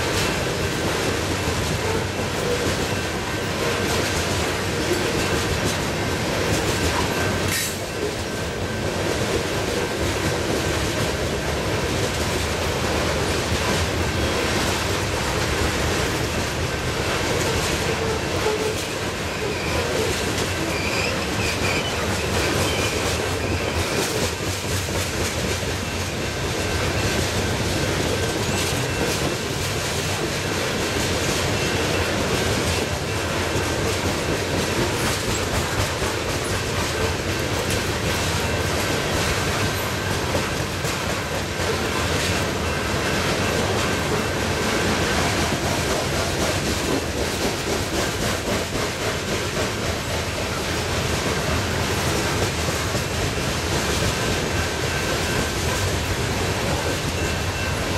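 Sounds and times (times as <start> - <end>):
train cars rolling past: 0.0 - 57.9
wheels clicking over rail joints: 0.0 - 57.9
faint high wheel squeal: 18.0 - 24.2, 31.4 - 33.3, 56.8 - 57.9.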